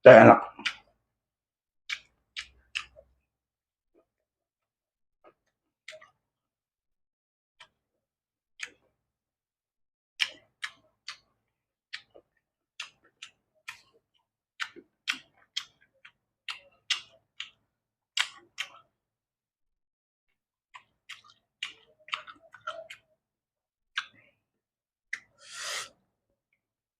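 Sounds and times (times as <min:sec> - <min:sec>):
person chewing with wet mouth clicks: 0:00.6 - 0:00.9, 0:01.9 - 0:03.0, 0:05.3 - 0:06.2, 0:10.2 - 0:11.3, 0:11.9 - 0:17.6, 0:18.2 - 0:18.9, 0:20.7 - 0:23.2, 0:24.0 - 0:24.3.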